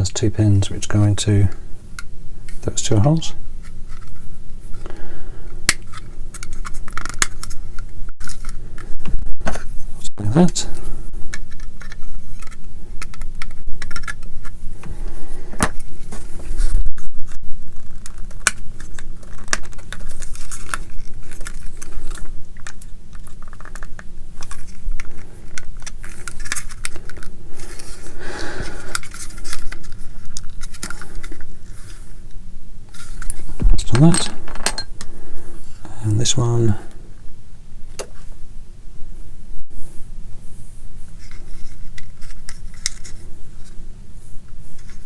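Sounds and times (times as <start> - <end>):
plastic parts clicking and scraping: 5.7 - 9.7, 10.8 - 16.8, 17.8 - 35.1, 41.2 - 43.8.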